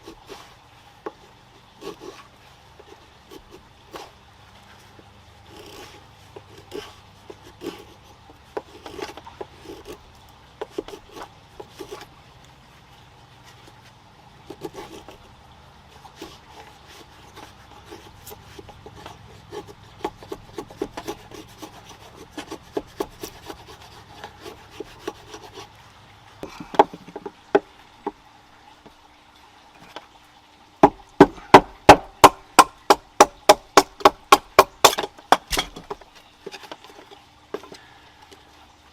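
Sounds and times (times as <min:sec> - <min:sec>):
firewood knocking together: 0:26.4 - 0:28.2, 0:30.8 - 0:37.8
sharp wood knocks: 0:26.4 - 0:28.2, 0:30.8 - 0:36.1.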